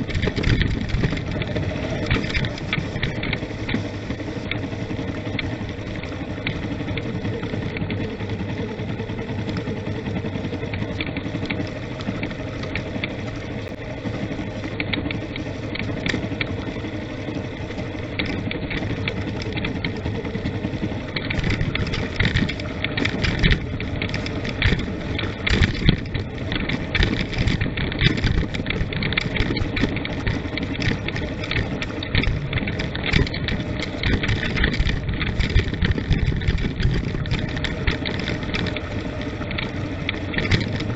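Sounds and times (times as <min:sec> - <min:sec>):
vehicle knocks and rattles: 0:00.0 - 0:13.4, 0:17.8 - 0:40.9
vehicle engine running: 0:00.0 - 0:40.9.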